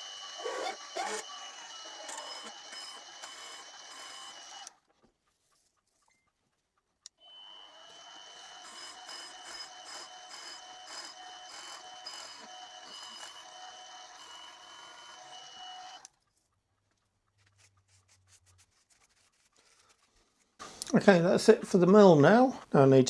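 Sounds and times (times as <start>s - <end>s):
milling machine spindle whine: 0.0s - 4.7s, 7.2s - 16.1s.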